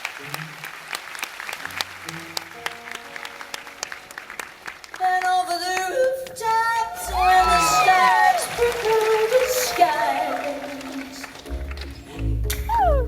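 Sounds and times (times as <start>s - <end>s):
audience applause: 0.0s - 12.2s
person singing: 5.0s - 13.0s
band playing bass and guitar: 11.4s - 13.0s.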